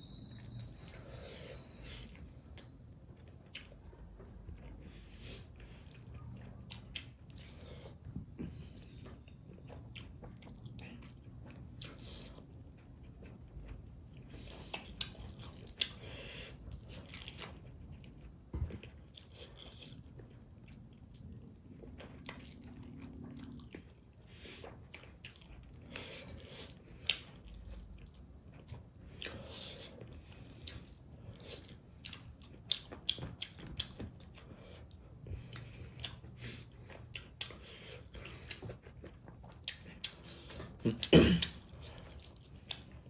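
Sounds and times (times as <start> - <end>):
chewing and crunching food: 0.0 - 43.0.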